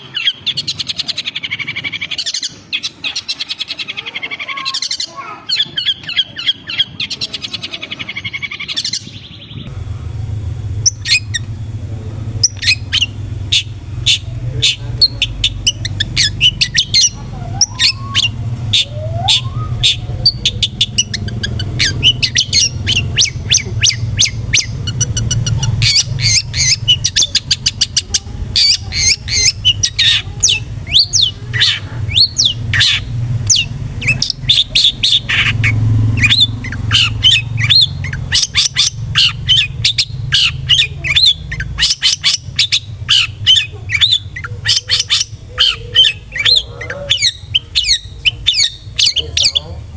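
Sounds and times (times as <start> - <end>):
shrike harsh chattering calls: 0.0 - 49.9
steady low hum: 0.0 - 49.9.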